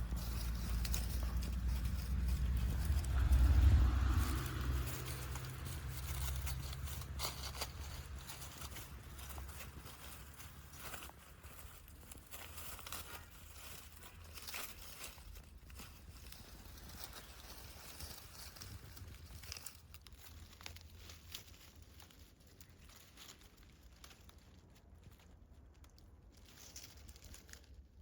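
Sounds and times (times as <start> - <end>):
low steady hum: 0.0 - 21.6
rustling and crinkling: 0.0 - 28.0.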